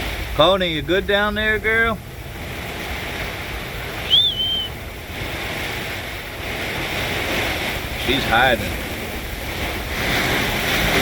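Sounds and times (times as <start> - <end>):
hard rain: 0.0 - 11.0
squall wind: 0.0 - 11.0
wind buffeting microphone: 0.0 - 11.0
high whistle: 4.0 - 4.8.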